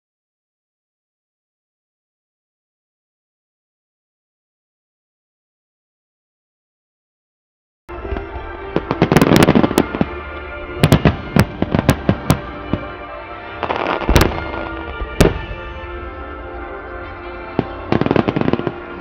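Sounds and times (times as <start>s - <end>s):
fireworks bursting: 7.9s - 19.0s
music over loudspeakers: 7.9s - 19.0s.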